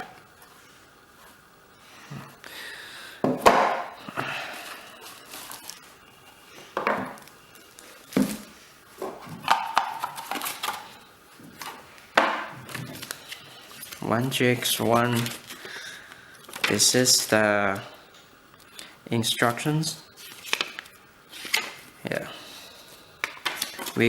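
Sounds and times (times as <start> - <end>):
plastic wrap rustling: 4.5 - 17.4, 20.2 - 22.0, 22.7 - 24.0.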